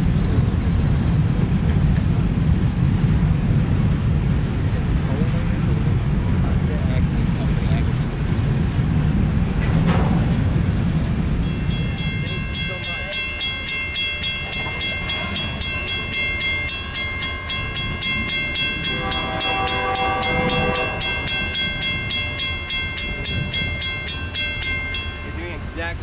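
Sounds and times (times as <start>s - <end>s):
train passing rumble: 0.0s - 26.0s
bell ringing rapidly: 11.4s - 26.0s
locomotive horn: 18.8s - 21.6s.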